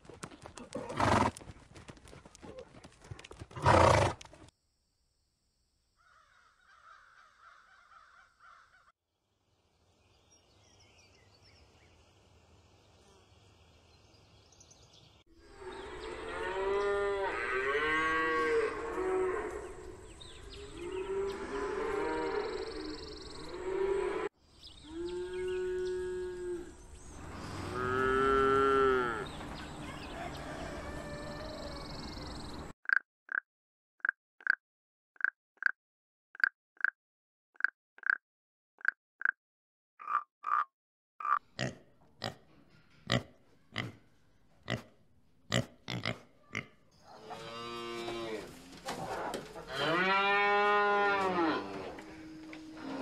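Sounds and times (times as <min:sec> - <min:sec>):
calf mooing: 0:49.7 - 0:53.0.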